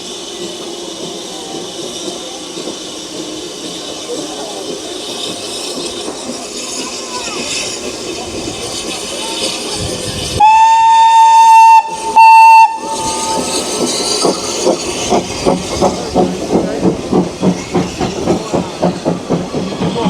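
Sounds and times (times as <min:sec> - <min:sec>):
steam locomotive chuffing: 0:00.0 - 0:20.0
steam locomotive whistle: 0:10.4 - 0:13.8.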